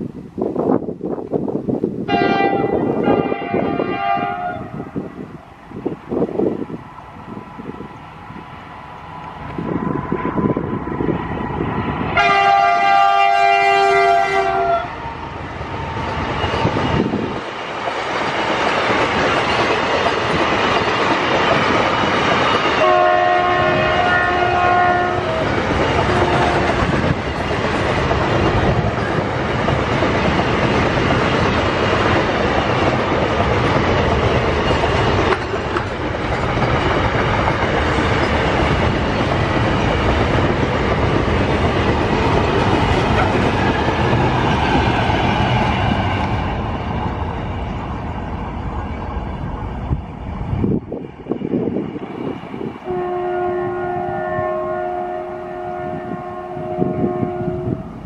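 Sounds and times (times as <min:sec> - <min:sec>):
train wheel and rail noise: 0:00.0 - 0:58.0
locomotive air horn: 0:02.1 - 0:05.2, 0:12.2 - 0:15.2, 0:22.8 - 0:25.5, 0:26.1 - 0:26.8, 0:52.8 - 0:58.0.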